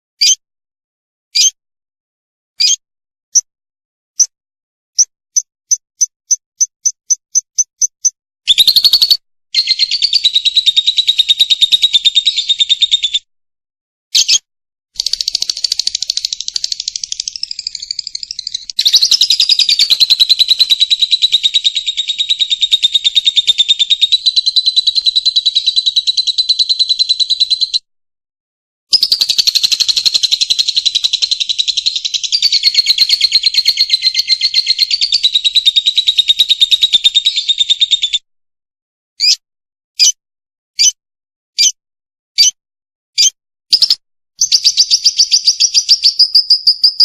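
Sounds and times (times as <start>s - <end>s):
lovebird chattering trills: 8.5s - 13.0s, 15.0s - 27.8s, 28.9s - 37.9s.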